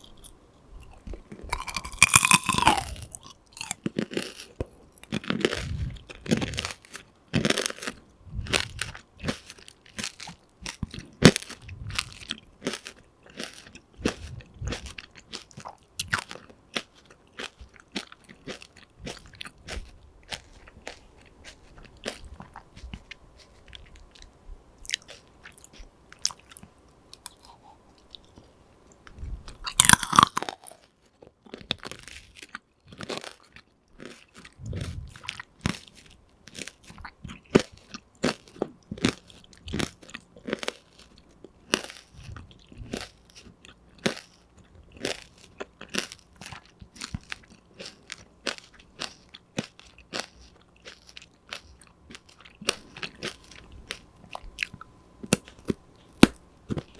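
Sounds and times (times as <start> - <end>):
crunchy chewing: 0.0 - 56.9.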